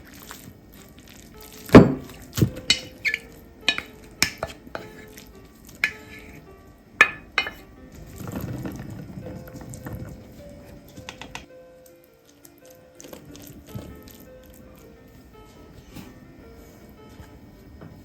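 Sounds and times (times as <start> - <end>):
kitchen utensils and dishes clinking: 0.0 - 11.5, 12.2 - 18.0
soft rustling: 4.8 - 11.5.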